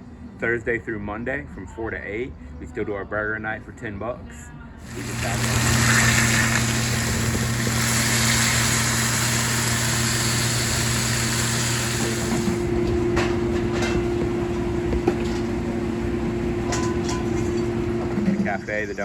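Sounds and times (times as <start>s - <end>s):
steady low hum: 4.7s - 19.0s.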